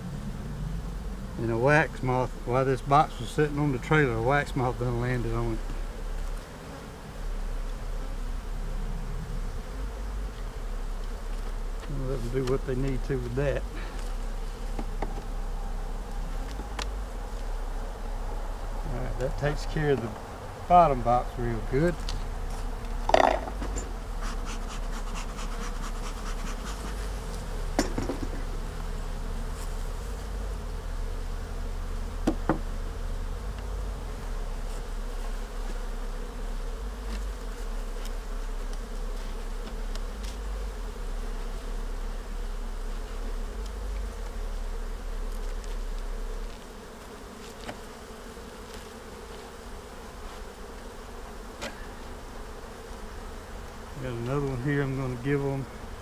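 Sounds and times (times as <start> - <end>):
honeybees buzzing: 0.0 - 56.0
wooden hive frames knocking: 27.7 - 28.6, 32.2 - 32.8.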